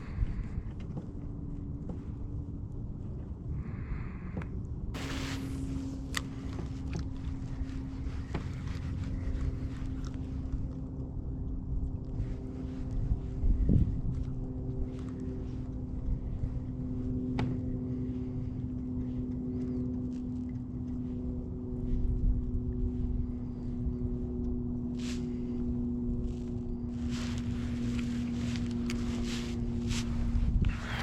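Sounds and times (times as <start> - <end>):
low motor hum: 0.0 - 31.0
wind rumbling on microphone: 0.0 - 31.0
short rustles: 26.2 - 31.0.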